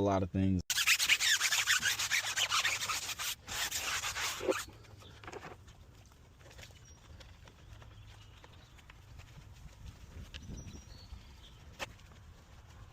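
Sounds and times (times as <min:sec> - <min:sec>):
stiff brush scrubbing: 0:00.7 - 0:06.8, 0:11.4 - 0:12.9.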